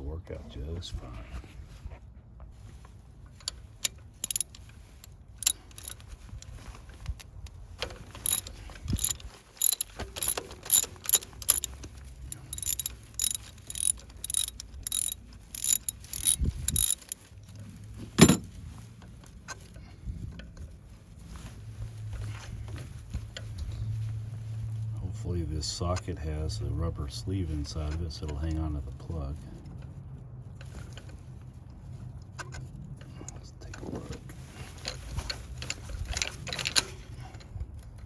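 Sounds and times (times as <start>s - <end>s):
socket ratchet clicking: 4.2s - 4.6s, 5.4s - 6.0s, 8.2s - 11.7s, 12.3s - 17.2s.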